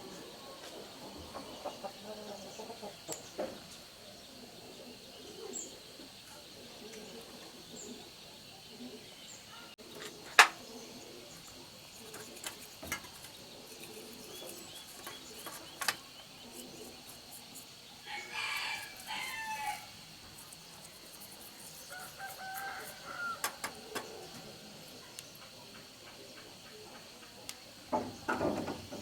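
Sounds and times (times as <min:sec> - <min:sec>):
rooster crowing: 0:18.0 - 0:20.0, 0:21.9 - 0:23.8.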